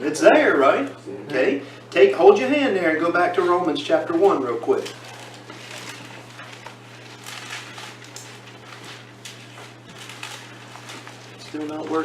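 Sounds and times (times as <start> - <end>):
low electrical hum: 0.0 - 12.0
book pages turning: 3.4 - 12.0.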